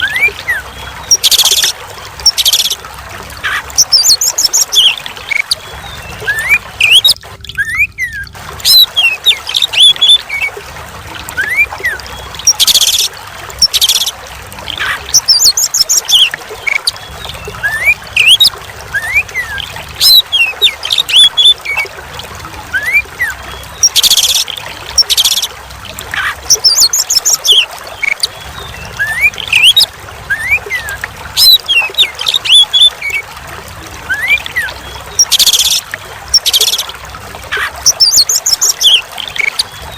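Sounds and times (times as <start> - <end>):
trickling water: 0.0 - 39.9
bird singing whistled song: 3.9 - 10.2, 15.2 - 21.6, 26.5 - 28.3, 28.9 - 33.2, 34.1 - 35.8, 36.4 - 36.9, 37.9 - 39.9.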